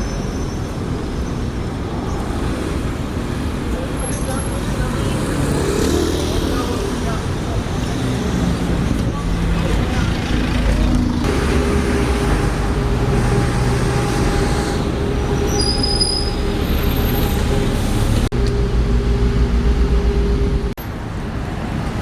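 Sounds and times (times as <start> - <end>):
vehicle engine rumbling: 0.0 - 22.0
high-pitched squeals: 11.6 - 20.6.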